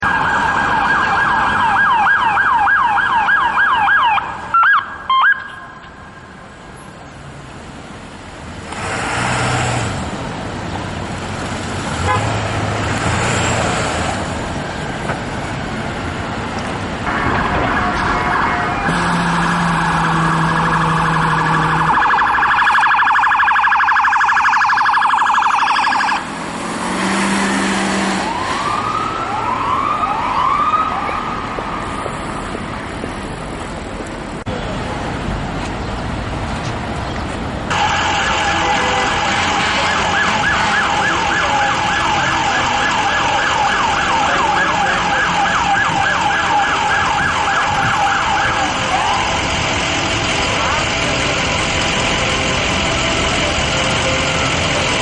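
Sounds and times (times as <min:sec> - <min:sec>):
emergency truck siren wailing and yelping: 0:00.0 - 0:06.4, 0:16.9 - 0:32.1, 0:37.7 - 0:55.0
city traffic noise: 0:00.0 - 0:55.0.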